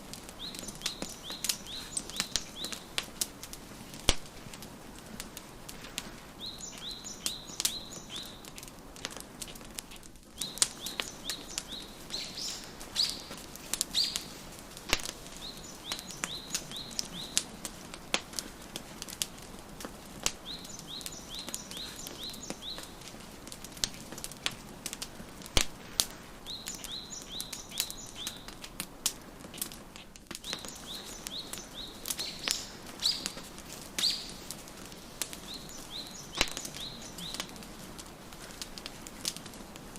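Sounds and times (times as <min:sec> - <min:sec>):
wood fire crackling and popping: 0:00.0 - 0:39.9
songbird chirping: 0:00.3 - 0:03.1, 0:06.3 - 0:08.6, 0:10.3 - 0:18.3, 0:20.3 - 0:23.2, 0:26.4 - 0:28.6, 0:30.4 - 0:37.8.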